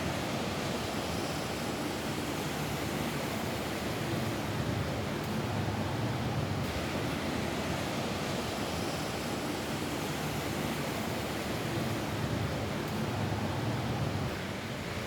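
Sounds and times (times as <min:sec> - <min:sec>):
rain on a roof: 0:00.0 - 0:15.0.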